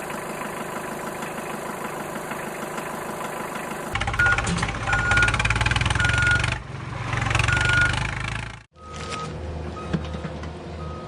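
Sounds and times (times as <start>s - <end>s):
diesel engine chugging: 0.0s - 8.7s.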